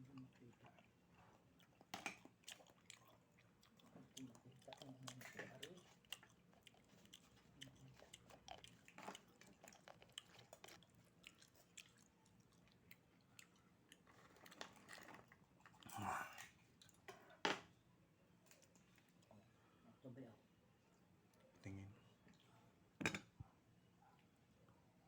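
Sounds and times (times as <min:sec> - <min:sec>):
person chewing: 0:00.2 - 0:17.0.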